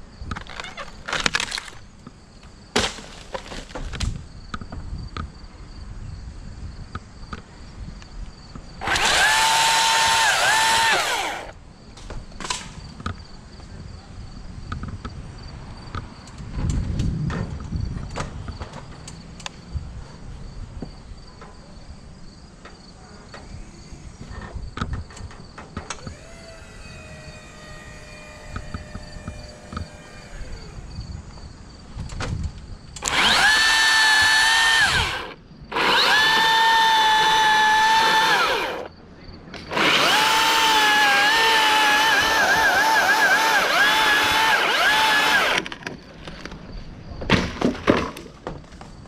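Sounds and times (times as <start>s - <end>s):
chainsaw cutting: 8.8s - 11.6s, 26.0s - 30.8s, 33.0s - 38.9s, 39.6s - 45.8s.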